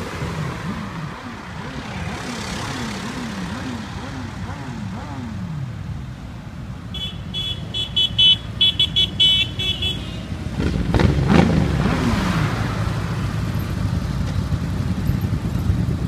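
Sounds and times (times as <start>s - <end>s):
vehicle passing close by: 0.0s - 5.8s, 10.4s - 14.0s
road traffic: 0.0s - 16.0s
high-pitched vehicle horn beeping: 6.9s - 10.4s.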